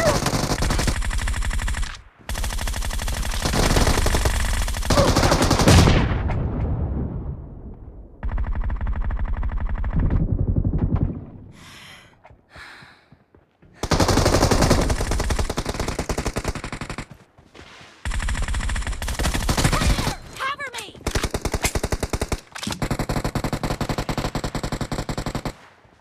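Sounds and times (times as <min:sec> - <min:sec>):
video game automatic gunfire: 0:00.0 - 0:06.0, 0:13.8 - 0:17.2, 0:18.1 - 0:20.1, 0:21.0 - 0:25.7.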